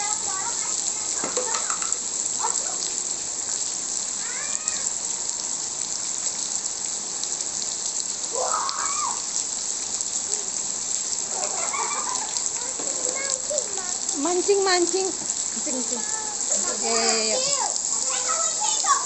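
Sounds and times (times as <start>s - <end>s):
child calling: 0.0s - 2.9s, 4.2s - 5.0s, 8.3s - 9.3s, 11.3s - 14.2s, 15.9s - 19.0s
rain falling: 0.0s - 19.0s.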